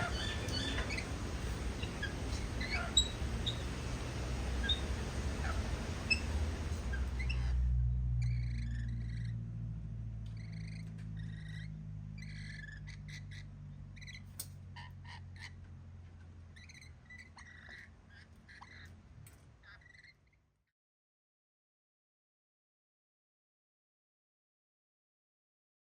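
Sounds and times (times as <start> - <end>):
birds chirping: 0.0 - 9.5, 10.2 - 20.4
low hum: 0.0 - 17.4.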